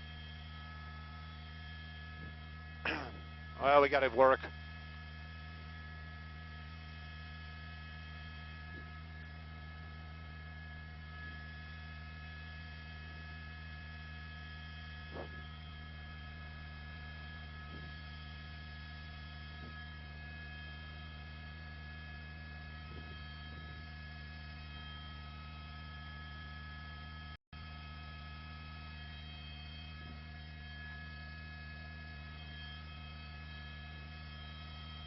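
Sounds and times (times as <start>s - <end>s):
helicopter drone in cabin: 0.0s - 35.0s.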